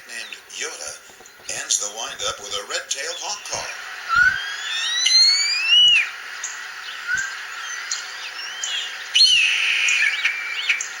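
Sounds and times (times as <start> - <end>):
bird harsh call: 4.1 - 11.0.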